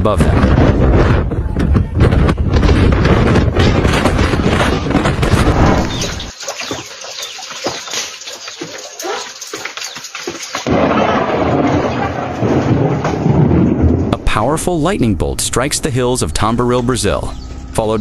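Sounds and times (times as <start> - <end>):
wind and rain rushing: 0.0 - 8.5, 9.4 - 15.0
scattered knocks and patter: 0.1 - 14.2.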